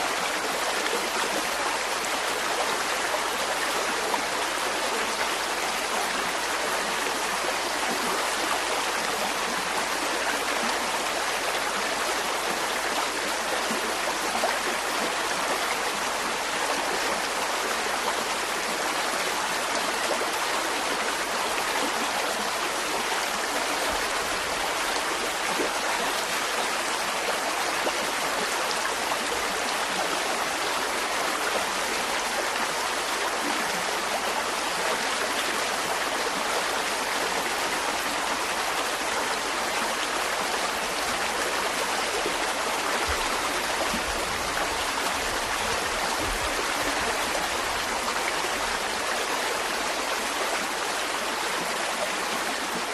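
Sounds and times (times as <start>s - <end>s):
stream flowing over rocks: 0.0s - 52.9s.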